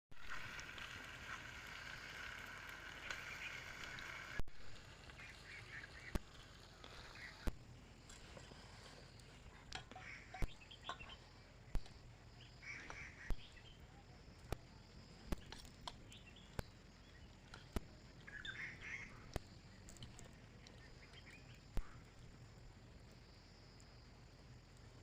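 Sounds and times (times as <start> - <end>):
bird-like calls: 5.1 - 7.6, 9.8 - 11.8, 12.4 - 13.9, 17.8 - 19.5.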